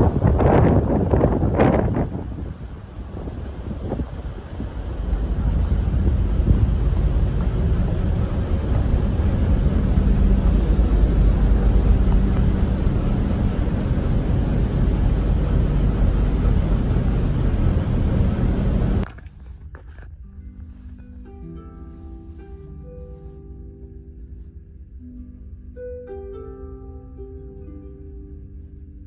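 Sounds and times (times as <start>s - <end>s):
wind buffeting microphone: 0.0s - 19.1s
ferry engines droning: 0.0s - 28.7s.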